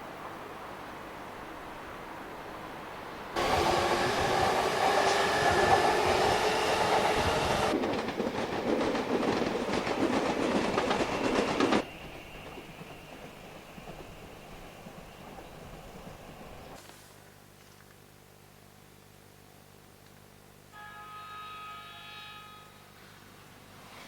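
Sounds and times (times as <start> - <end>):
electric train running on rails: 0.1 - 16.8.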